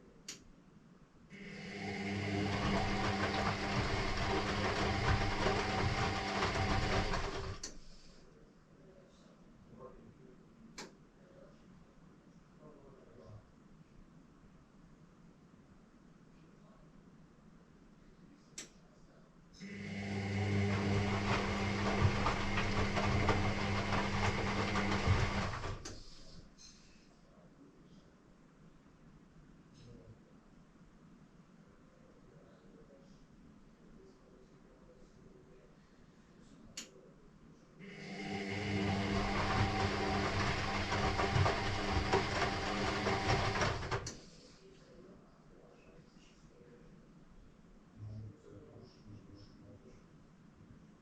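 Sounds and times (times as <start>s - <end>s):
washing machine motor humming: 1.3s - 8.2s, 19.6s - 26.4s, 37.8s - 44.3s
laundry tumbling in a drum: 2.4s - 7.6s, 20.4s - 26.2s, 38.8s - 44.1s.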